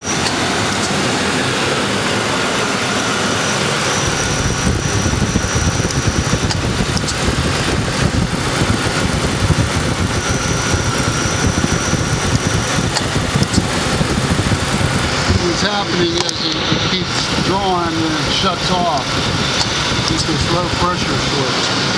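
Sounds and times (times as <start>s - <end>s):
car engine idling: 0.0s - 21.9s
heavier uneven low rumble: 0.0s - 21.9s.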